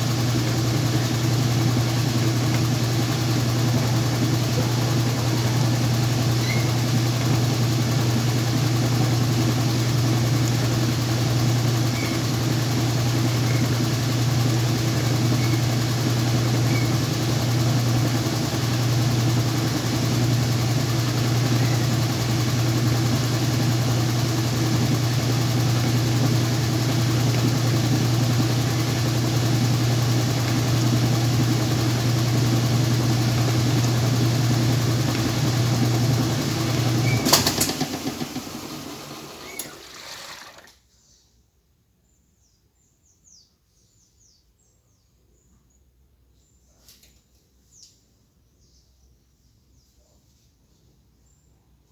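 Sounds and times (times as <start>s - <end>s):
washing machine motor hum: 0.0s - 40.8s.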